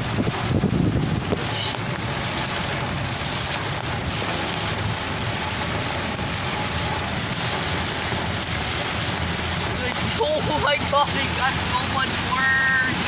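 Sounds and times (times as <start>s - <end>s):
car road noise: 0.0s - 13.0s
heavy rain on car roof: 0.0s - 13.0s.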